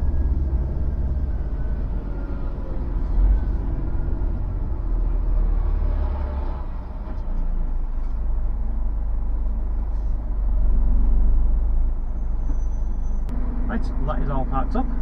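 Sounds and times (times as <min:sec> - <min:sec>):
truck diesel engine rumbling: 0:00.0 - 0:15.0.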